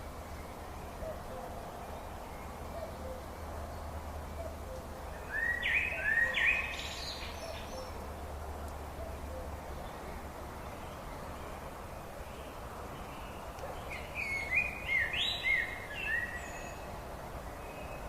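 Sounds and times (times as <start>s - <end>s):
bird calling: 4.4s - 8.0s.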